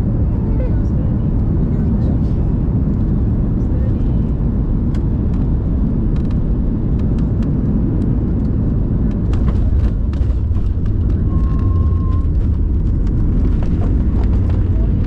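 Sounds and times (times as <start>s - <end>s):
airliner cabin rumble: 0.0s - 15.0s
light rattles and clicks: 6.1s - 15.0s.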